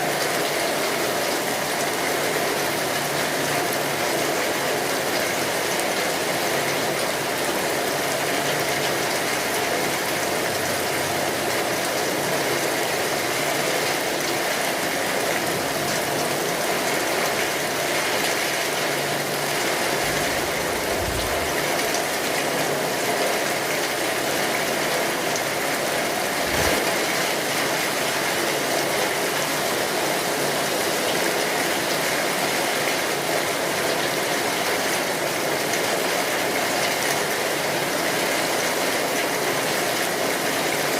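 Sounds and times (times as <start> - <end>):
steady rainfall: 0.0 - 40.9
low thumps: 20.0 - 22.0.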